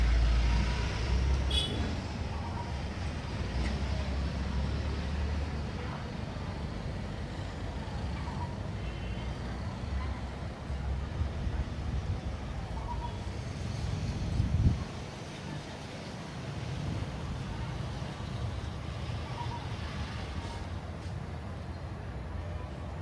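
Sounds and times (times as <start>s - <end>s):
passing vehicles rumble: 0.0s - 23.0s.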